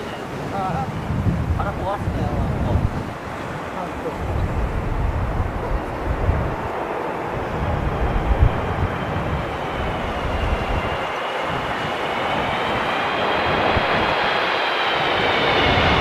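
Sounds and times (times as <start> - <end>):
jet airliner engine whine: 0.0 - 16.0
wind buffeting microphone: 0.0 - 16.0.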